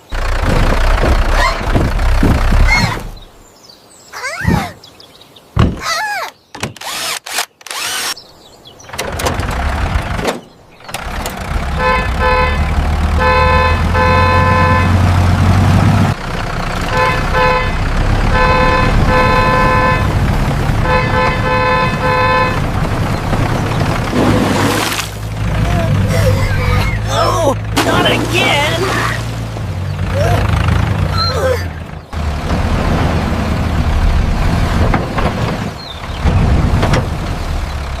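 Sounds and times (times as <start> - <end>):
motor rumbling: 0.0 - 3.4, 10.8 - 38.0
cartoon squeaky noises: 1.3 - 1.7, 2.6 - 3.2, 4.2 - 4.8, 5.8 - 8.2, 31.1 - 31.8
horn honking: 11.5 - 15.8, 16.8 - 23.1.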